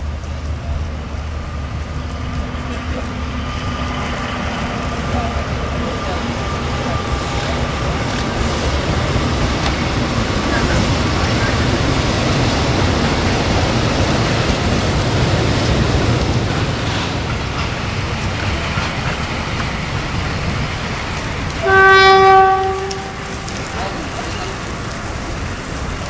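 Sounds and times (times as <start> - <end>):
freight train rumbling past: 0.0 - 26.0
locomotive horn: 21.6 - 24.6.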